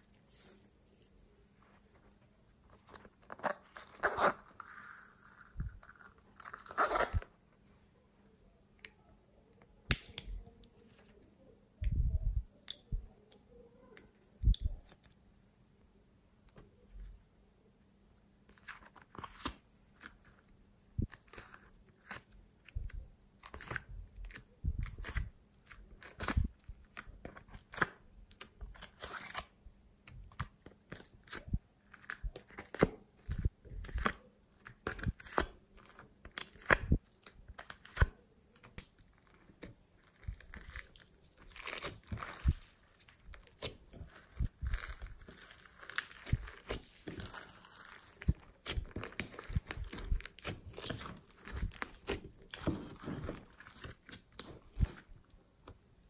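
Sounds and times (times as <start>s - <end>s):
slime squelching and popping: 30.2s - 55.1s.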